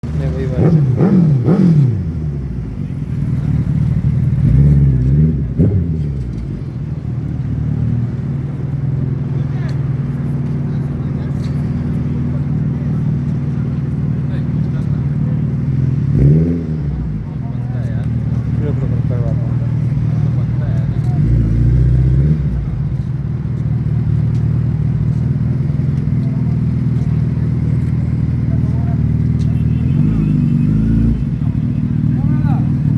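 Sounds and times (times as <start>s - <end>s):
motorcycle engine idling and revving: 0.0s - 32.9s.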